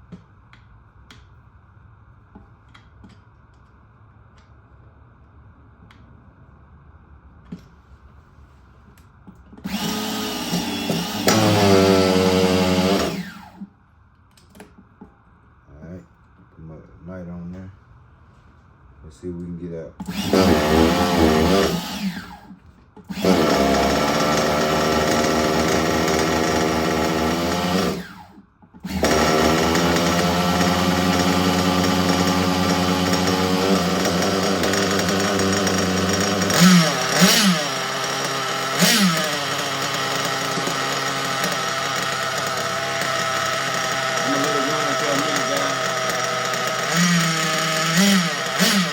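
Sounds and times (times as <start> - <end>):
small model engine buzzing: 9.7 - 13.6, 20.1 - 22.5, 23.1 - 48.9.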